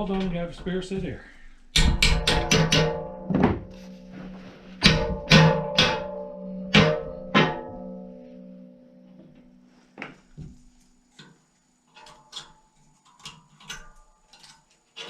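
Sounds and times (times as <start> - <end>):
hammer striking steel saw blade: 1.8 - 8.2.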